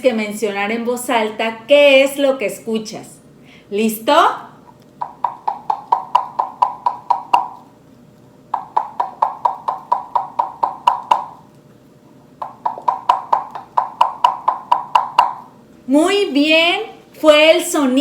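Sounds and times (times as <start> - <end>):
string cup clucking: 4.9 - 7.7, 8.6 - 11.6, 12.3 - 15.5.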